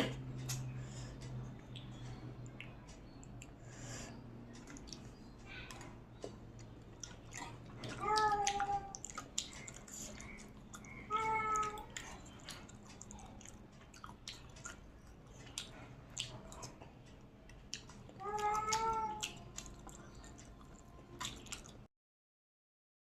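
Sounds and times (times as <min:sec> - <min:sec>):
cat meowing: 0:07.8 - 0:09.0, 0:11.1 - 0:11.9, 0:18.2 - 0:19.4.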